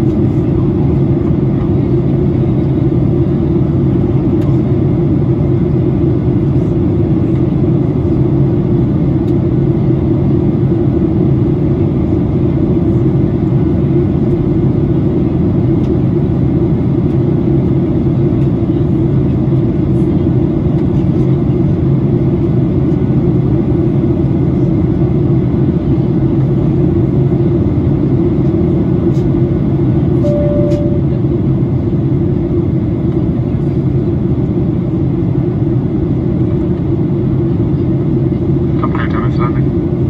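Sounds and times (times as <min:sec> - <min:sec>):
airliner cabin engine drone: 0:00.0 - 0:40.0
short single tone: 0:30.2 - 0:31.2.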